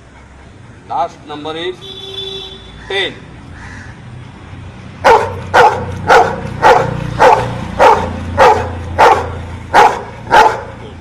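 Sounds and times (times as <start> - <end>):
dog barking: 5.0 - 10.9.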